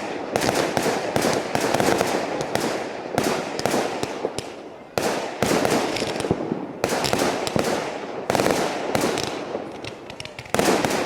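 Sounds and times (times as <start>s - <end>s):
fireworks bursting: 0.0s - 11.0s
crackle of small pops: 3.6s - 4.6s, 5.8s - 6.4s, 8.4s - 11.0s.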